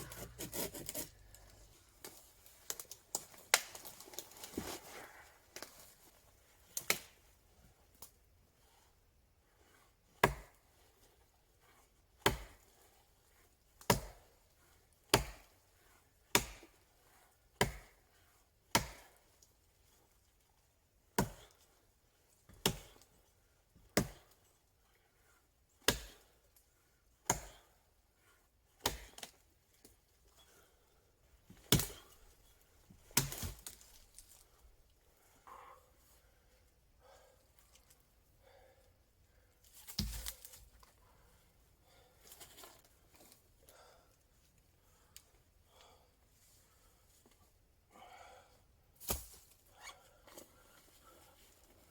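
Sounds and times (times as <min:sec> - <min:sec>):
axe chopping wood: 0:10.2 - 0:10.5, 0:12.2 - 0:12.6, 0:13.9 - 0:14.2, 0:15.1 - 0:15.5, 0:16.4 - 0:16.7, 0:17.6 - 0:18.0, 0:18.8 - 0:19.1, 0:22.6 - 0:22.9, 0:25.9 - 0:26.2, 0:27.3 - 0:27.6, 0:28.8 - 0:29.3, 0:31.6 - 0:32.1, 0:33.1 - 0:33.8, 0:39.8 - 0:40.4, 0:49.0 - 0:49.4.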